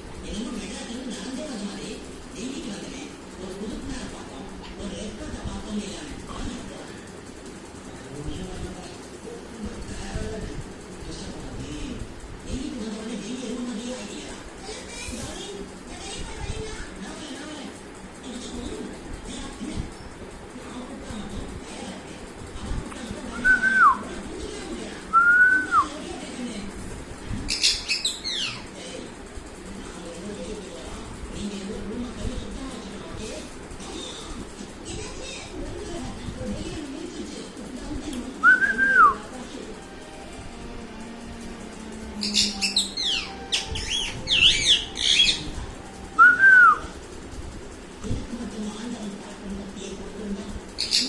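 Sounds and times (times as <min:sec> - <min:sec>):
parrot screeching: 0:42.2 - 0:45.4
whistled notes: 0:46.2 - 0:46.9.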